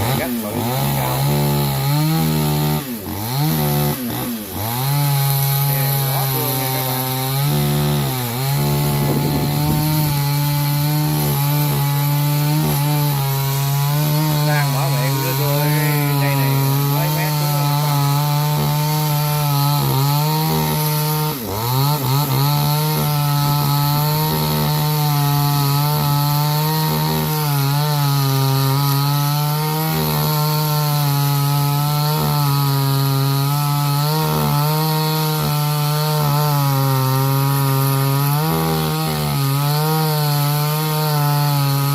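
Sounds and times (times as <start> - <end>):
chainsaw cutting wood: 0.0 - 41.9.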